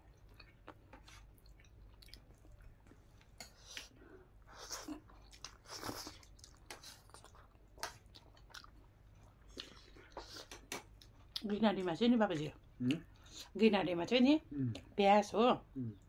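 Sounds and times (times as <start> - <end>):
person chewing food: 0.0 - 11.5.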